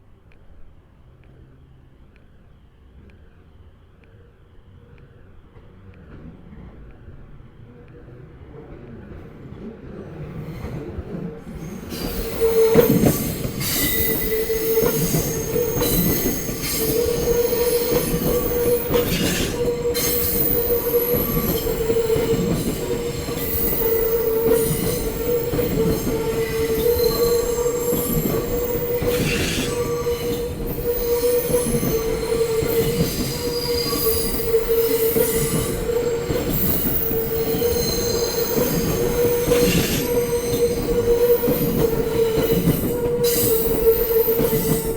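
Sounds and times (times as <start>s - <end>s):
electric train passing: 2.9s - 44.9s
high-pitched wheel squeal: 11.6s - 44.9s
wheels knocking on rail joints: 11.6s - 44.9s.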